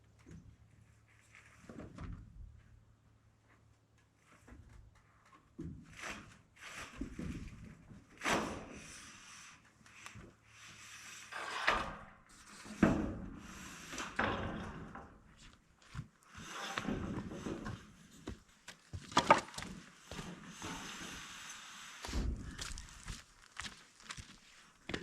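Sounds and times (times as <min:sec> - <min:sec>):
building materials knocking and scraping: 0:04.2 - 0:09.2, 0:09.9 - 0:22.8.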